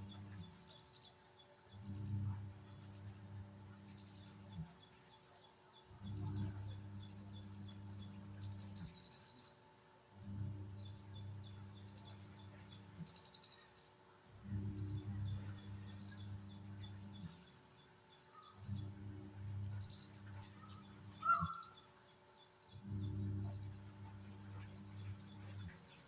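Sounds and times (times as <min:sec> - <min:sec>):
low steady hum: 0:00.0 - 0:26.0
birds chirping: 0:14.8 - 0:26.0
loud bird call: 0:21.1 - 0:21.8.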